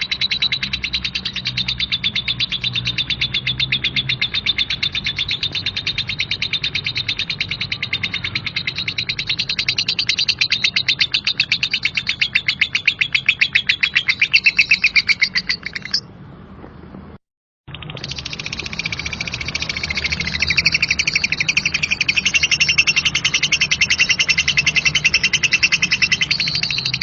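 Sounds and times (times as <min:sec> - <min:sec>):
lovebird harsh chirping chatter: 0:00.0 - 0:16.1, 0:17.7 - 0:27.0.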